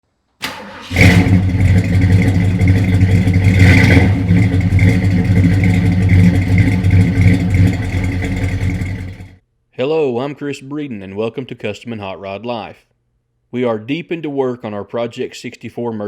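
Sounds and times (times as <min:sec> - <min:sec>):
car engine running loudly: 0:00.8 - 0:09.4.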